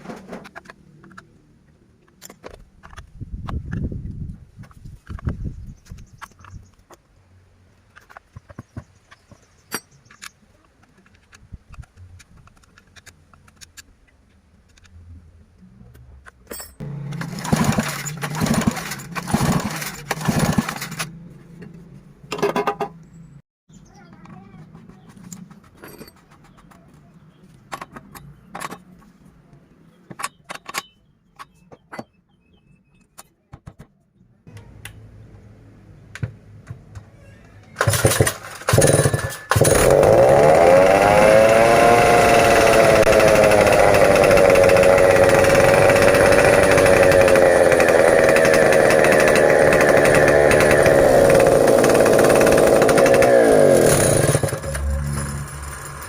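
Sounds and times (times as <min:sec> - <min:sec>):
chainsaw engine running: 0:16.8 - 0:21.2, 0:37.8 - 0:56.0.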